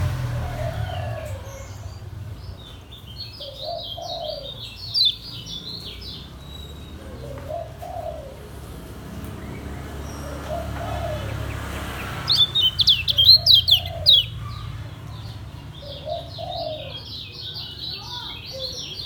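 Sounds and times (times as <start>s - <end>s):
dove cooing: 0.3s - 2.0s, 3.3s - 6.2s, 7.0s - 9.0s, 10.1s - 17.8s.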